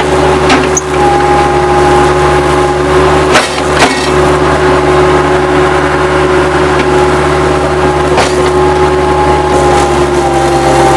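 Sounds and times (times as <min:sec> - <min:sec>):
loader engine drone: 0:00.0 - 0:10.9
steady whine: 0:00.0 - 0:10.9.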